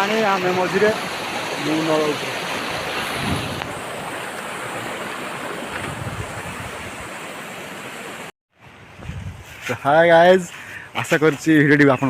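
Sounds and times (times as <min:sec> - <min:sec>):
floodwater rushing: 0:00.0 - 0:08.3.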